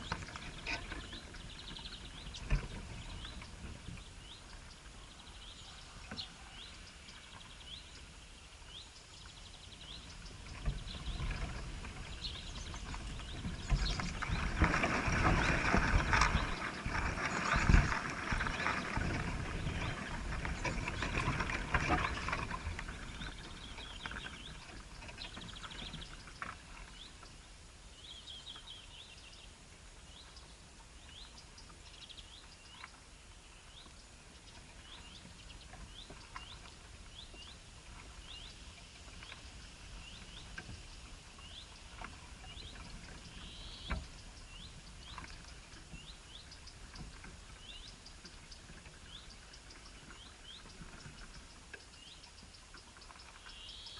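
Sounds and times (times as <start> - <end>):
rustling noise: 10.3 - 26.9.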